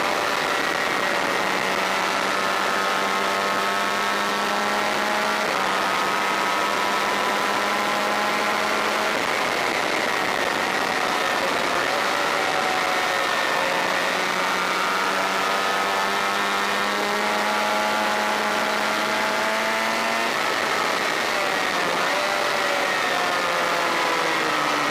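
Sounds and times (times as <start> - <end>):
motorcycle engine pulling at speed: 0.0 - 24.9
steady rush of noise: 4.8 - 16.8.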